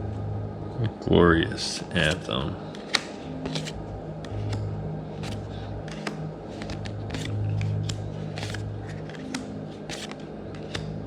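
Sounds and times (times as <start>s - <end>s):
low steady hum: 0.0s - 11.0s
trading cards flipped by hand: 2.8s - 11.0s.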